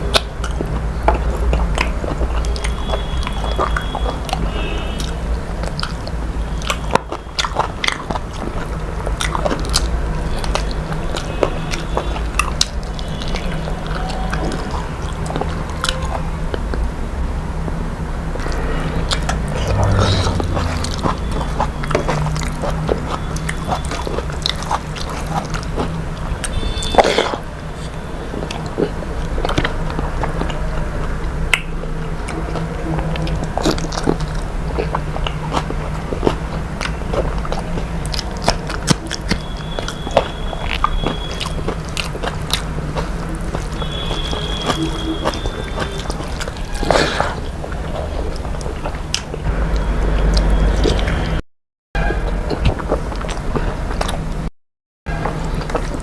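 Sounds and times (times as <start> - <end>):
person chewing crunchy food: 0.0 - 16.8, 18.4 - 51.4, 52.0 - 54.5, 55.1 - 56.0.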